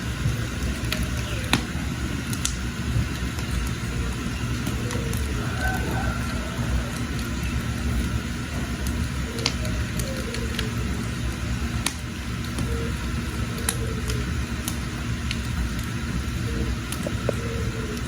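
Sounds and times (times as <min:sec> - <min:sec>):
fire low rumble: 0:00.0 - 0:18.0
wood fire crackling and popping: 0:00.0 - 0:18.0.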